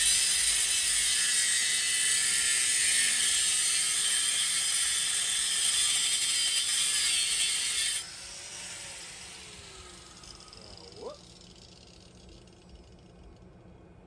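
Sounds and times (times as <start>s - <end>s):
power tool cutting steel pipe: 0.0s - 11.1s
motor winding down whine: 8.0s - 12.7s.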